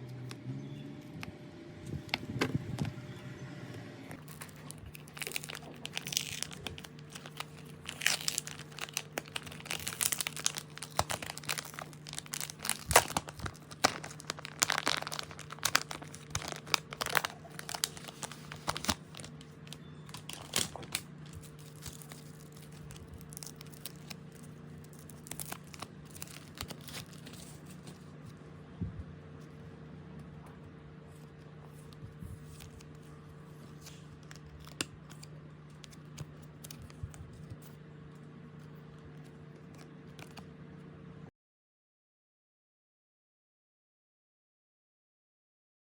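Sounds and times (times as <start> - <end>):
low electrical hum: 0.0 - 41.3
packaging crinkling: 4.2 - 28.4, 31.2 - 37.8, 38.6 - 40.5.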